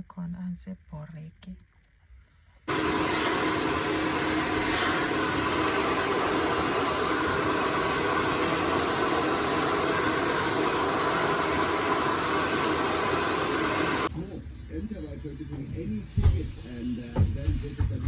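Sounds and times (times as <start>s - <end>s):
hair dryer blowing: 2.7s - 14.1s.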